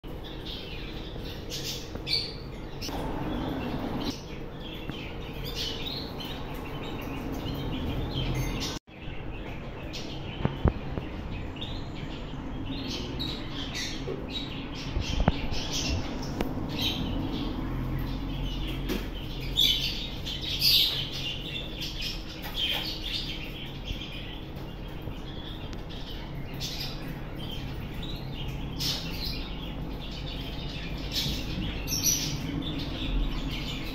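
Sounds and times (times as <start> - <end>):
parrots chirping: 1.2 - 4.3
low hum: 2.8 - 4.2.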